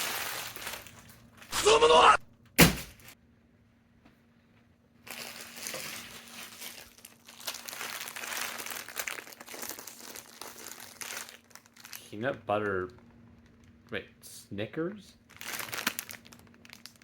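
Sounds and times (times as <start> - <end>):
plastic candy wrapper crinkling: 0.0 - 1.5, 5.0 - 14.0, 15.2 - 17.0.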